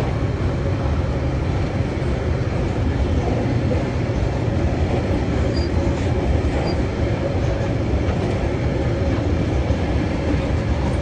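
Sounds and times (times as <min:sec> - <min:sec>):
train wheels rumbling on rails: 0:00.0 - 0:11.0
wheels clickety-clack: 0:01.6 - 0:11.0.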